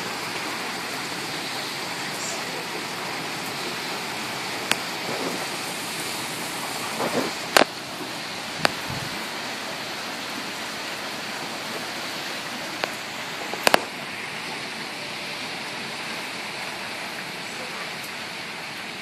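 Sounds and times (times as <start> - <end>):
heavy rain: 0.0 - 19.0
sharp clicks: 13.6 - 13.9.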